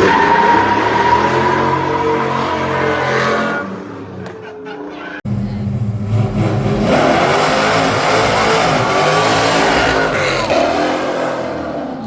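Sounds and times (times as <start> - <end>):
car engine revving hard: 5.8 - 12.0.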